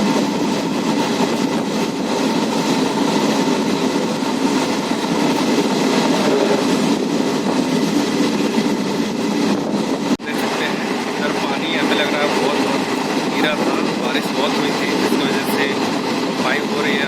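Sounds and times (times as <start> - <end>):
train wheels running on rails: 0.0 - 17.0.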